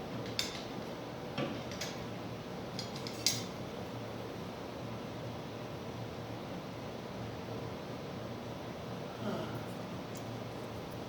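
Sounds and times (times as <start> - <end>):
small metal hardware clinking: 2.8 - 3.5.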